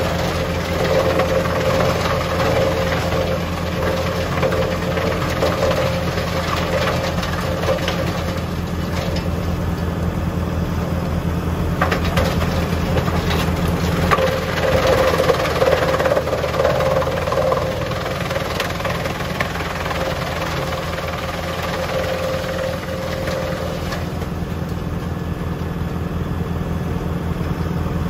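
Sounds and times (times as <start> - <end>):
tractor engine under load: 0.0 - 28.0.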